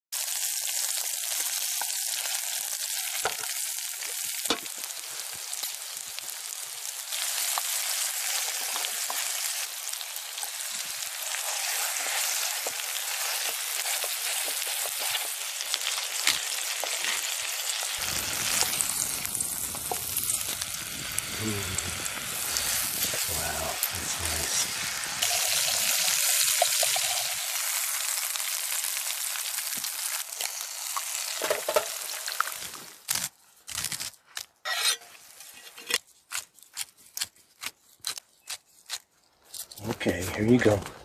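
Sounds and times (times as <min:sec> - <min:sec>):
meat sizzling in oil: 0:00.2 - 0:33.0.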